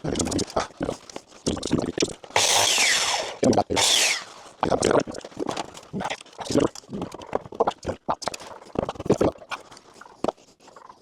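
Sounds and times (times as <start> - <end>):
saw rasping through wood: 2.4 - 4.4.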